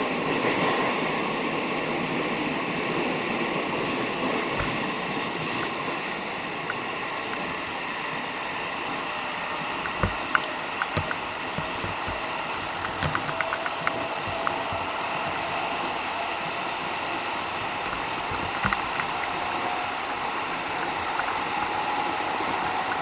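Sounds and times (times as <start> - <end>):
train running rumble and hiss: 0.0 - 23.0
sharp clicks and knocks: 9.4 - 15.5, 17.6 - 19.4.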